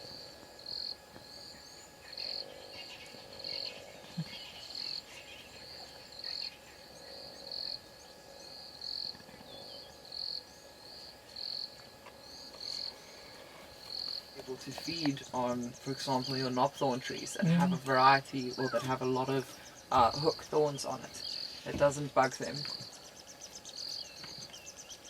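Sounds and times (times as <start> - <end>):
insect chirping: 0.0 - 25.0
faint bird calls: 1.5 - 7.8.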